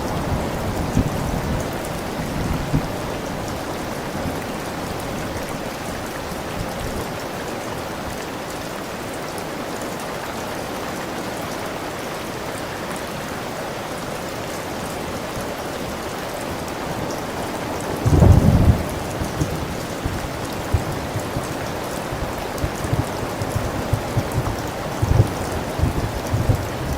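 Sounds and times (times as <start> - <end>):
steady rain falling: 0.0 - 26.9
thunder clap: 18.0 - 26.9.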